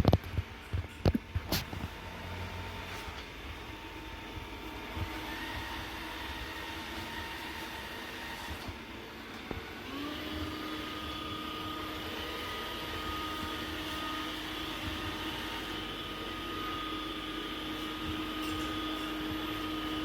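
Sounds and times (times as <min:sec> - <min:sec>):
robot vacuum whining: 0:04.3 - 0:20.0.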